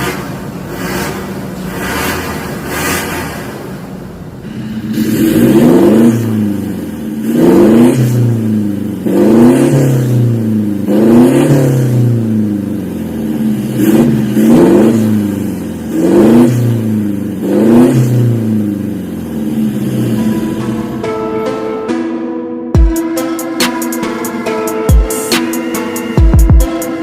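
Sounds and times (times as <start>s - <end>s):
car engine revving: 0.0s - 21.2s.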